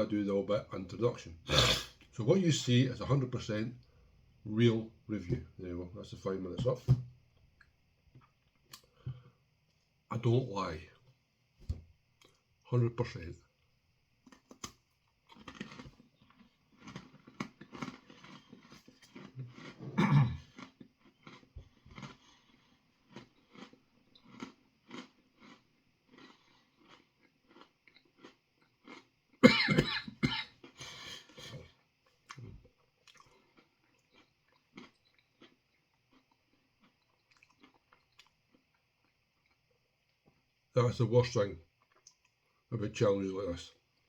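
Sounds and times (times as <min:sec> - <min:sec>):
man coughing: 0:01.5 - 0:02.0, 0:19.8 - 0:20.5, 0:29.4 - 0:31.6
man chewing crunchy food: 0:14.2 - 0:29.6, 0:30.4 - 0:40.5, 0:41.7 - 0:42.6.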